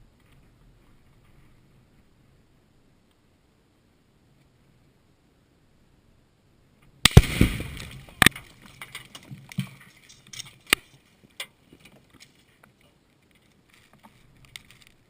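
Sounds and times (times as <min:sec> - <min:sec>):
explosive blast: 0:07.0 - 0:08.3
sharp cracks and rattles: 0:07.0 - 0:12.4, 0:13.2 - 0:15.0.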